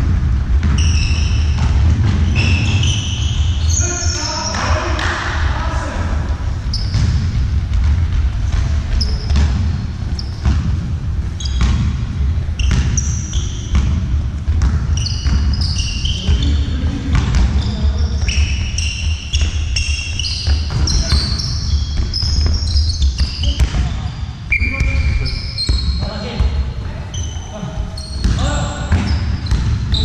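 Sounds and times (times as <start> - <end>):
ball bouncing and thudding: 0.0 - 3.6, 6.7 - 24.1, 28.1 - 30.0
players' voices in hall: 0.0 - 30.0
shoes squeaking on floor: 0.6 - 4.9, 6.6 - 7.4, 8.6 - 10.7, 11.3 - 14.0, 14.8 - 30.0.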